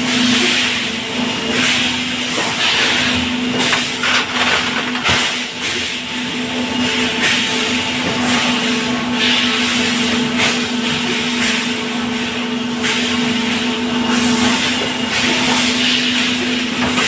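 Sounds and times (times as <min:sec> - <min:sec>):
machinery humming: 0:00.0 - 0:17.0.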